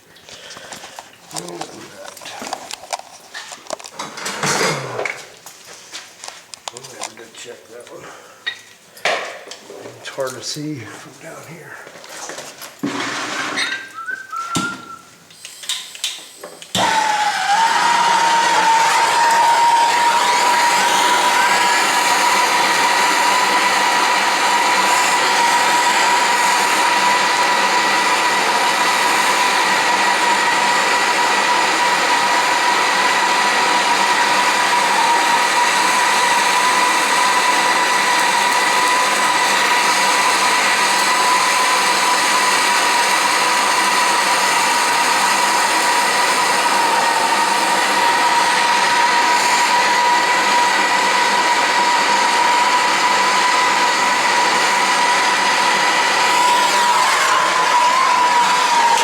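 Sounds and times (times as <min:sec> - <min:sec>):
faint whistle: 0:13.9 - 0:15.1
gas torch flame hissing: 0:14.6 - 0:17.4, 0:18.1 - 0:51.2.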